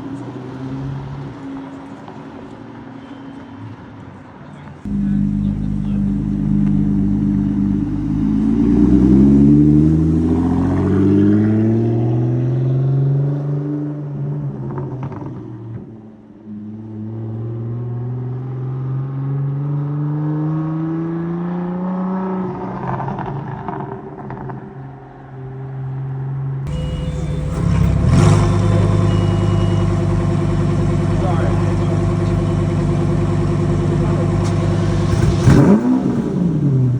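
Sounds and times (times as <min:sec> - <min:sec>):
car engine revving: 0:04.9 - 0:13.0, 0:26.7 - 0:36.9.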